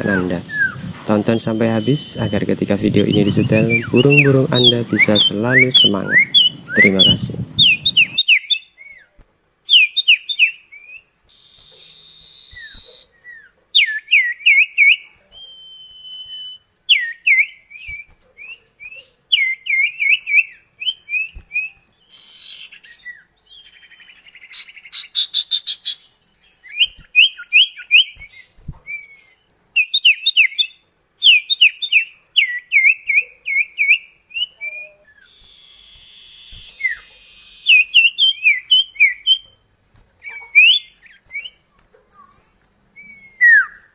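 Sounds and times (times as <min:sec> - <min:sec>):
bird raspy buzzing: 0:00.0 - 0:08.2
bird sharp down-slurred chirps: 0:00.0 - 0:08.2
bird high whistle: 0:00.0 - 0:08.4, 0:14.5 - 0:18.0, 0:32.4 - 0:39.6, 0:40.2 - 0:41.6, 0:42.2 - 0:43.9.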